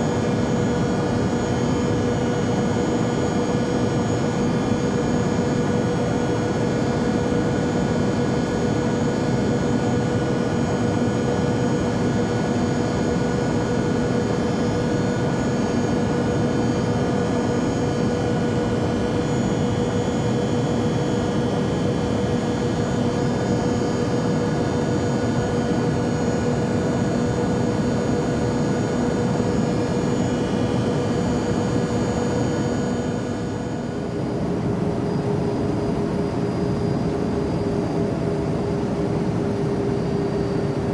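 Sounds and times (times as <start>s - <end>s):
airplane engine drone: 0.0s - 40.9s.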